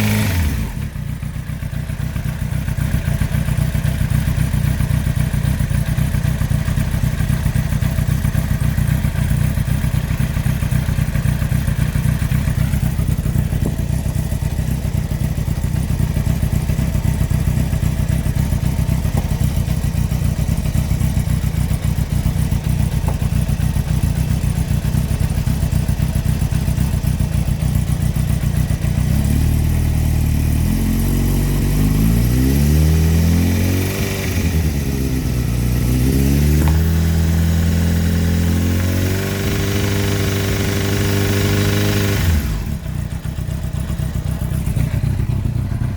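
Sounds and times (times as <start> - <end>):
motorcycle engine revving: 0.0 - 45.9
motorcycle engine idling with knock: 0.7 - 30.2, 34.0 - 45.9.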